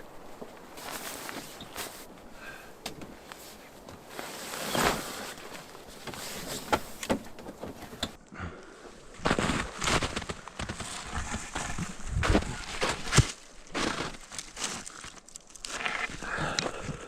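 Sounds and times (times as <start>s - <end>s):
footsteps in snow: 0.0s - 2.2s, 3.2s - 6.9s, 9.0s - 16.2s.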